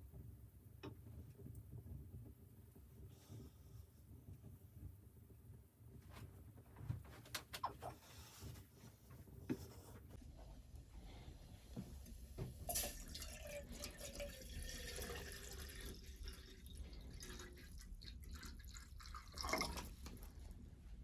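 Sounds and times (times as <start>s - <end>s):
water pouring into a container: 12.6s - 20.4s.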